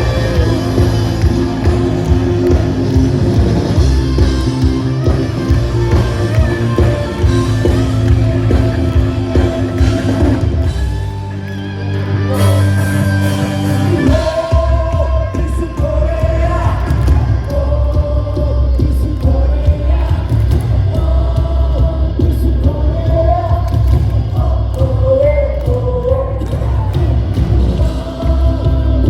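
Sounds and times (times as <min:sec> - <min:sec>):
electric guitar: 0:00.0 - 0:29.0
live rock band playing: 0:00.0 - 0:29.0
person singing: 0:12.1 - 0:29.0.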